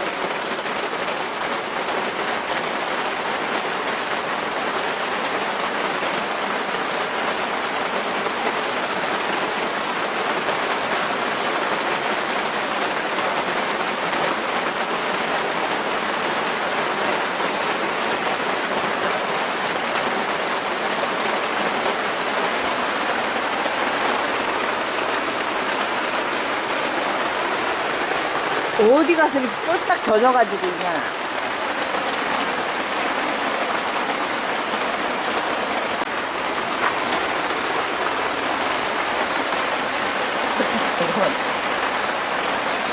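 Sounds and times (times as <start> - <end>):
rain pattering: 0.0 - 42.9.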